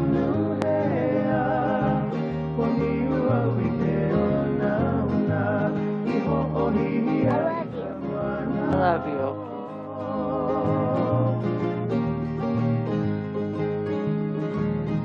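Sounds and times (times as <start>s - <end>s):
person singing: 0.0s - 12.0s
guitar: 0.0s - 15.0s.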